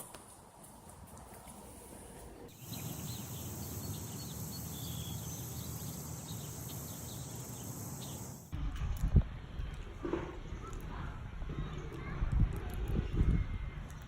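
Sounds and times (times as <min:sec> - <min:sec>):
bird chirps: 0:02.5 - 0:08.5
insect drone: 0:02.6 - 0:08.5.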